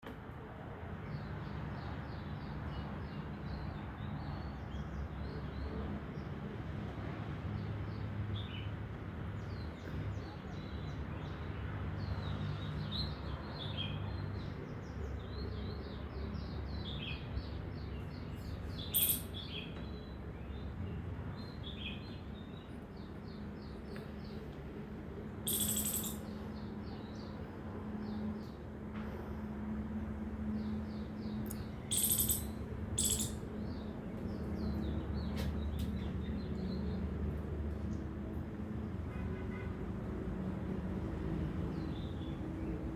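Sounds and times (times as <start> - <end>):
small birds chirping: 16.8 - 20.8, 25.5 - 27.0, 30.6 - 36.8.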